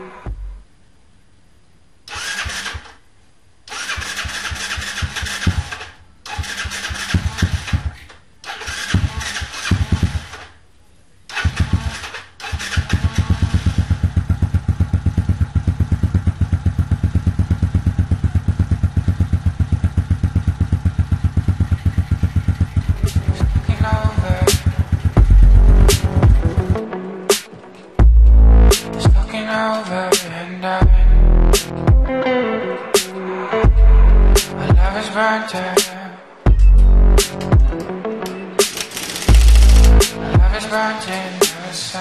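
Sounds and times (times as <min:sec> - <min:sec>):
motorcycle engine cranking and idling: 0:03.7 - 0:10.6, 0:11.3 - 0:26.8, 0:38.7 - 0:40.6.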